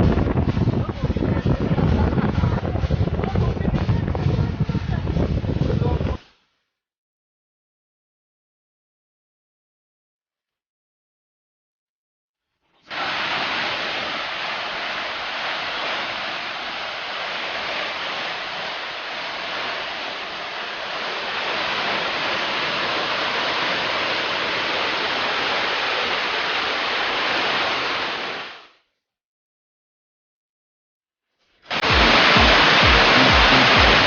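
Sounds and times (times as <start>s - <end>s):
waterfall rushing: 12.9s - 28.7s, 31.7s - 34.0s.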